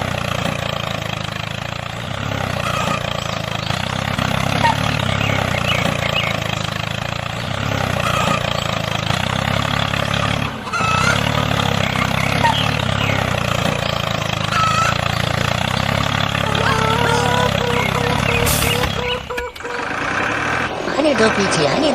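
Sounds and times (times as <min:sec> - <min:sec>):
truck engine running: 0:00.0 - 0:21.9
faint bird chirps: 0:02.6 - 0:06.9, 0:10.7 - 0:19.9.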